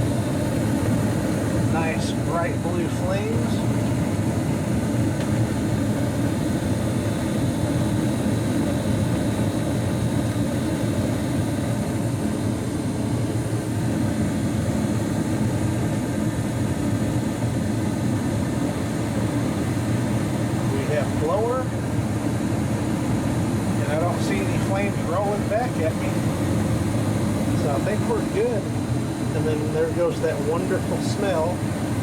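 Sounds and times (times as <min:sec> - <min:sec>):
gas furnace rushing and humming: 0:00.0 - 0:32.0.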